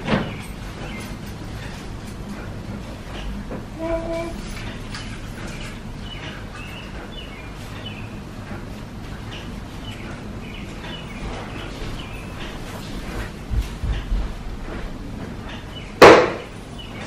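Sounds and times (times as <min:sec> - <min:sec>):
birds chirping: 0:00.2 - 0:01.8, 0:05.5 - 0:14.1, 0:15.5 - 0:17.0.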